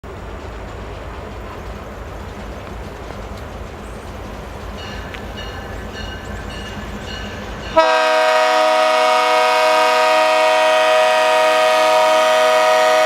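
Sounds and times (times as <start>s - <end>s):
crossing bell dinging: 4.7s - 9.0s
locomotive air horn blast: 7.8s - 13.0s.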